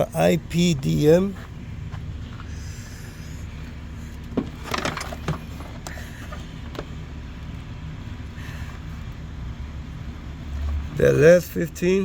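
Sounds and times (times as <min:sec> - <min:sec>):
steady low rumble: 0:00.0 - 0:12.0
clicks and rattles of hard parts: 0:04.3 - 0:06.9.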